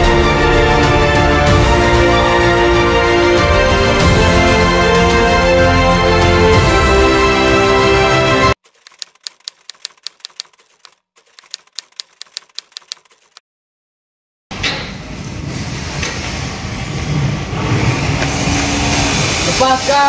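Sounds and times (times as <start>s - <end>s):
typewriter key clicks: 8.7s - 13.4s.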